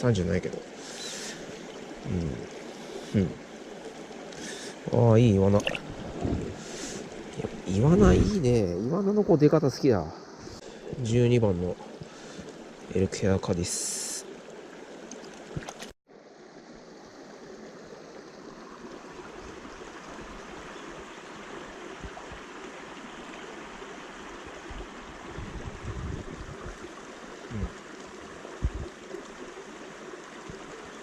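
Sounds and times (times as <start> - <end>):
stream water rushing: 0.0 - 31.0
low bumps: 5.6 - 6.6.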